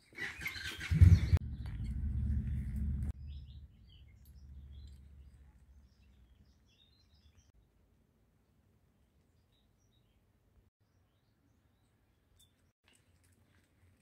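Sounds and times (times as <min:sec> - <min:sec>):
small birds chirping: 0:00.2 - 0:07.6
low rumble: 0:00.9 - 0:05.4.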